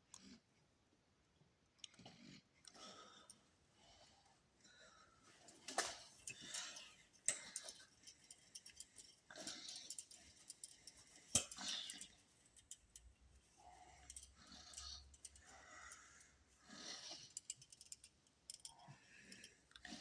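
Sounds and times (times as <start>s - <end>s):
small clicks and taps: 17.3s - 19.5s.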